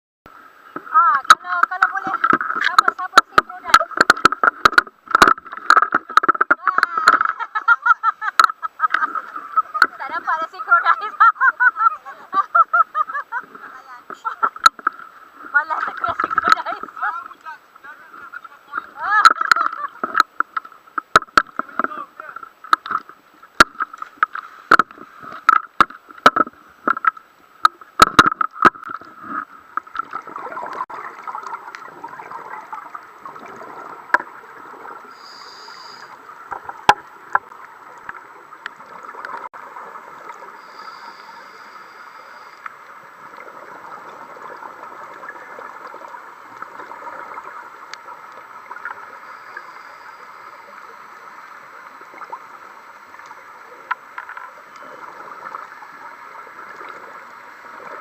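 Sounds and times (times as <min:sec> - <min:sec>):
muffled underwater noise: 0:00.8 - 0:07.7, 0:15.4 - 0:20.5
sharp clicks and knocks: 0:01.3 - 0:07.4, 0:19.2 - 0:21.9, 0:22.7 - 0:29.1.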